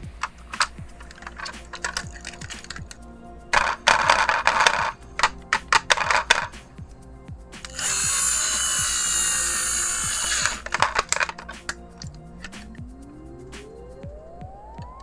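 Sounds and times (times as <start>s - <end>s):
toy truck plastic clicks: 0.0s - 6.7s, 7.6s - 12.8s
steady whir: 0.0s - 13.9s
background music: 0.0s - 15.0s.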